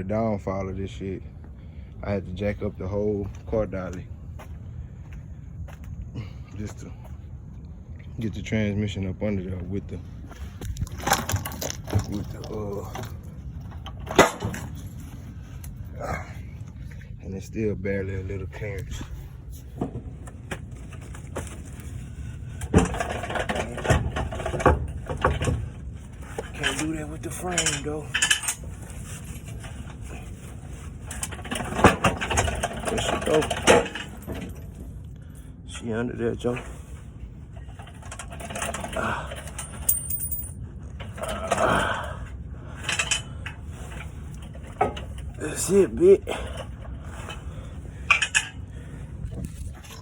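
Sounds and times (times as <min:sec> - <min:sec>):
steady low rumble: 0:00.0 - 0:50.0
metal knocks and clanks: 0:22.6 - 0:30.4, 0:31.0 - 0:34.9
metal tools clinking and rattling: 0:22.6 - 0:35.0, 0:35.8 - 0:42.1, 0:42.7 - 0:48.6
ringing metallic clank: 0:39.5 - 0:40.6.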